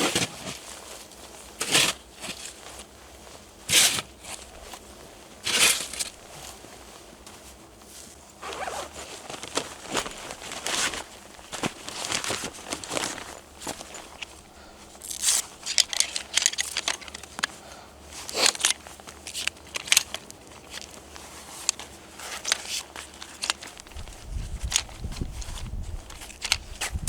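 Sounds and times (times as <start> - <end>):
snow crunching: 8.4 - 15.2.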